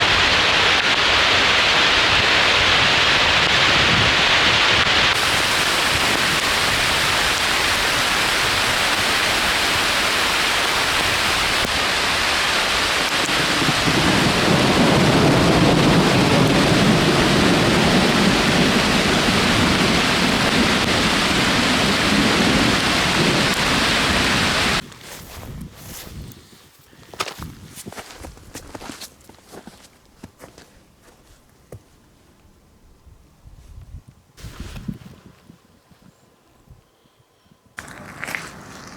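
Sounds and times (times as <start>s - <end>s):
heavy rain: 0.0s - 24.8s
thunder rumbling: 0.0s - 24.8s.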